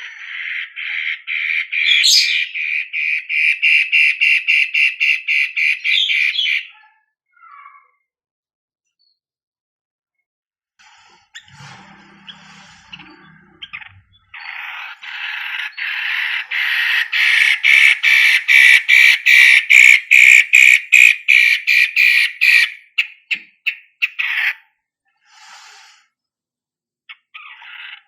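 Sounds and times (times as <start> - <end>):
shrike harsh scratchy chatter: 12.2 - 21.9.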